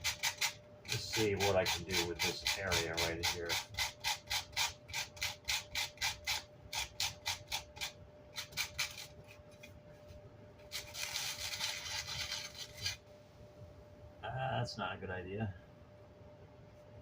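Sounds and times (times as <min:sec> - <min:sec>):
steady rubbing: 0:00.0 - 0:13.1
sandpaper scrubbing cloth: 0:10.7 - 0:13.0.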